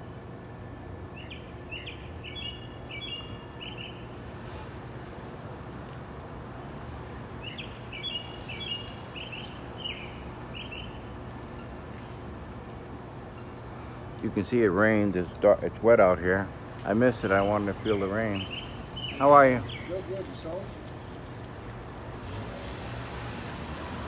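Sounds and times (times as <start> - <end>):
songbird chirping: 1.2 - 4.0, 16.9 - 21.1.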